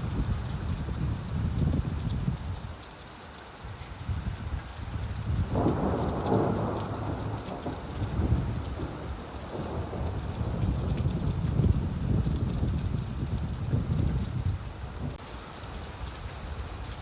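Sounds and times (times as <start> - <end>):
steady rain: 0.0 - 17.0
thunder rumbling: 4.9 - 15.2.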